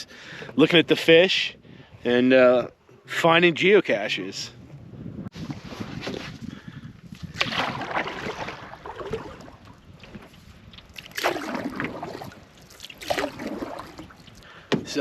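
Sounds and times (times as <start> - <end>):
canoe paddle strokes splashing: 7.1 - 15.0.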